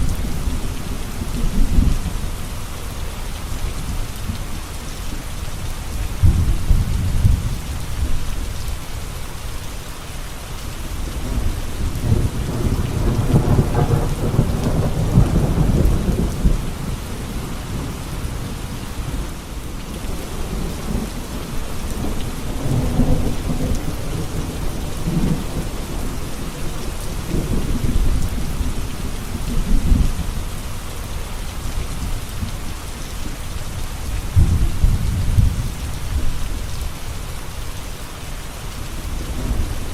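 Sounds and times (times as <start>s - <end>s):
steady rain falling: 0.0s - 39.9s
thunder rolling: 12.0s - 16.9s.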